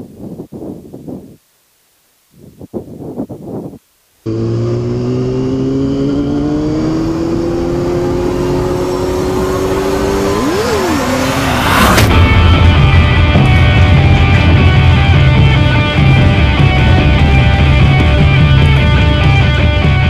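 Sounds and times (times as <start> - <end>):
motorcycle engine running: 4.3 - 20.0
rising whoosh into sharp hit: 10.2 - 14.5
heavy rock music: 11.2 - 20.0.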